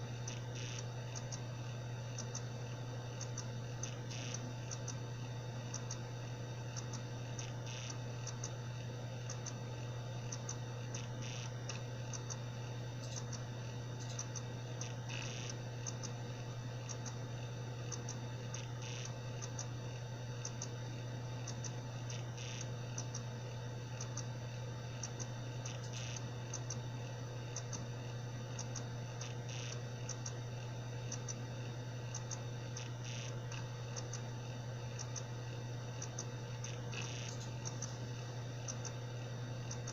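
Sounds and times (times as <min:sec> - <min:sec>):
hard drive spinning hum: 0:00.0 - 0:39.9
hard drive ticking: 0:00.0 - 0:39.9
hard drive loud click: 0:36.0 - 0:38.0.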